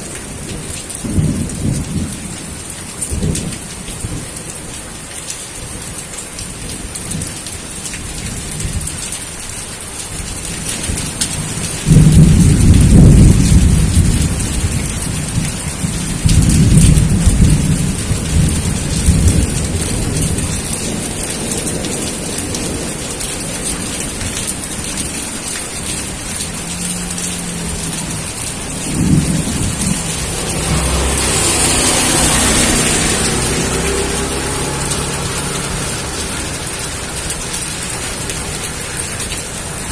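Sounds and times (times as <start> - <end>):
steady rain: 0.0 - 39.9
thunder claps rumbling: 10.9 - 39.9.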